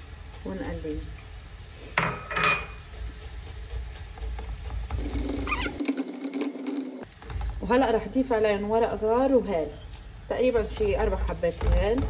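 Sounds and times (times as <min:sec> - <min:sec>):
vegetables sizzling in oil: 0:00.0 - 0:11.6
spatula stirring: 0:02.7 - 0:07.1.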